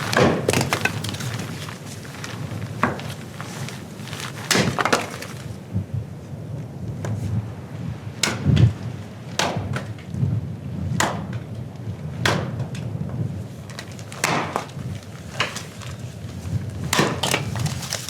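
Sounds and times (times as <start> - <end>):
firewood being chopped: 0.0 - 3.6, 4.4 - 5.6, 8.2 - 10.1, 10.9 - 12.9, 13.7 - 18.0.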